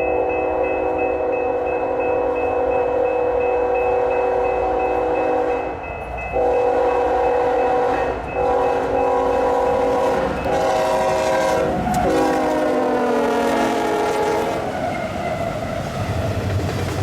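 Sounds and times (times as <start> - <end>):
locomotive air horn blasts: 0.1 - 5.7, 6.4 - 15.1.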